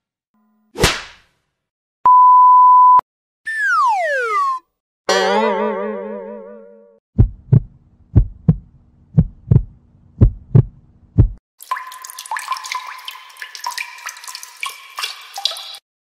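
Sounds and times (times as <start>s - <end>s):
heartbeat thumps: 7.2s - 11.4s
water dripping plinks: 11.6s - 15.8s.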